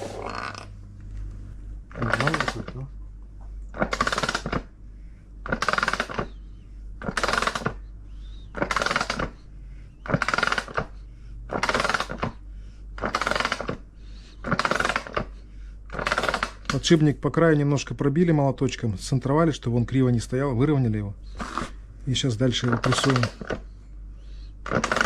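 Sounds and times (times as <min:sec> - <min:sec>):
ratchet wrench clicking: 0:13.0 - 0:13.7.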